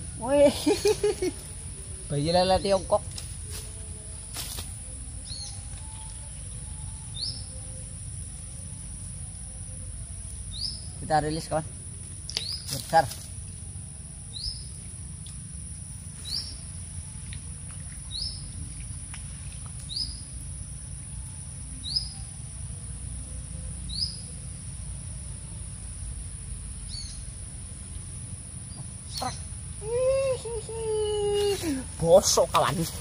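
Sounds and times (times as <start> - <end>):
steady low rumble: 0.0 - 11.0
constant high hiss: 0.0 - 33.0.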